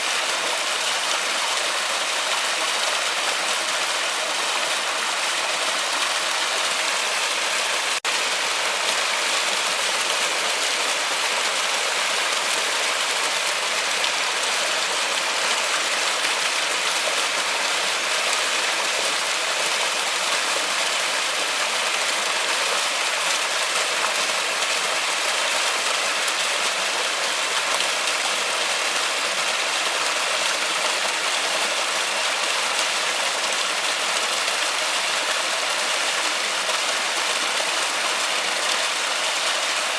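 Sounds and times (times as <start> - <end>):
heavy rain on forest: 0.0 - 39.9.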